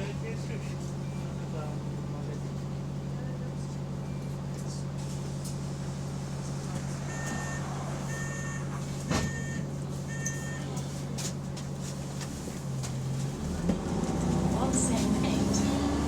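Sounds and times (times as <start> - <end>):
bus diesel engine idling: 0.0 - 16.0
short electronic warning beeps: 7.1 - 10.7.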